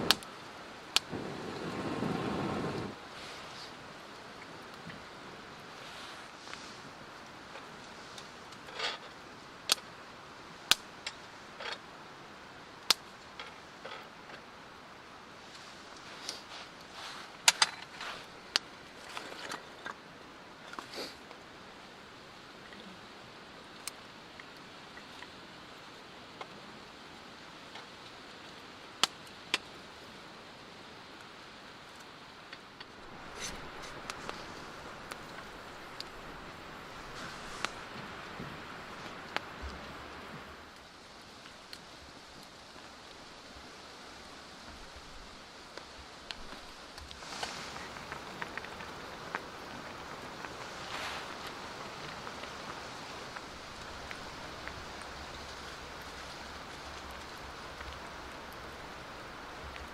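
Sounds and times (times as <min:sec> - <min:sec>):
faint hiss: 0:00.0 - 0:59.9
soft rustling: 0:05.6 - 0:09.1, 0:15.4 - 0:19.9, 0:32.8 - 0:40.6, 0:44.6 - 0:59.8.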